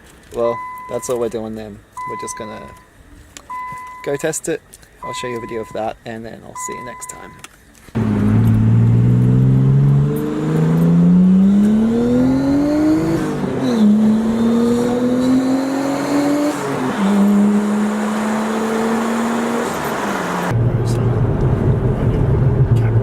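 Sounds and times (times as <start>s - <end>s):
car engine accelerating hard: 8.0s - 23.0s.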